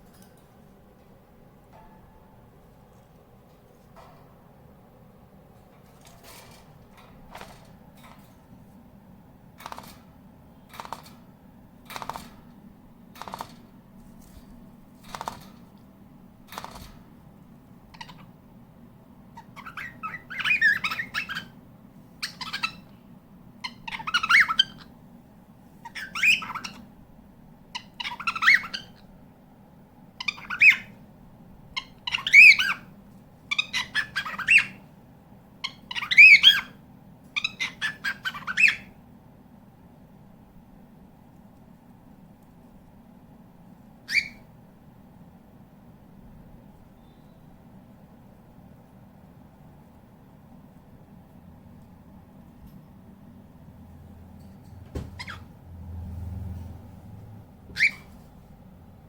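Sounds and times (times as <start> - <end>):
cockatiel chirps and squawks: 17.9 - 18.3, 19.4 - 21.6, 22.2 - 22.9, 23.6 - 24.9, 25.8 - 26.9, 27.8 - 29.0, 30.2 - 31.0, 31.8 - 32.9, 33.5 - 34.8, 35.6 - 36.8, 37.4 - 39.0, 44.1 - 44.5, 55.2 - 55.5, 57.7 - 58.2.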